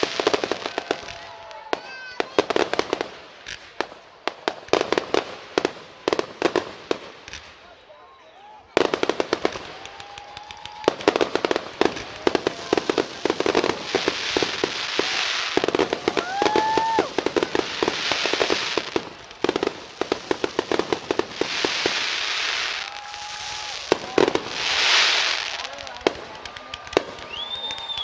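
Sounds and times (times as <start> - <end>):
fireworks hissing: 0.0 - 1.2, 9.1 - 28.0
fireworks bursts and crackling: 0.0 - 28.0
rising whistle: 27.2 - 28.0.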